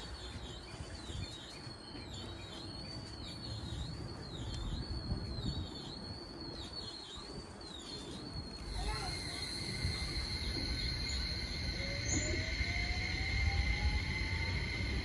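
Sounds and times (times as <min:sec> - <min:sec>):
train rumbling on rails: 0:00.0 - 0:15.0
high warbling tone: 0:08.7 - 0:15.0.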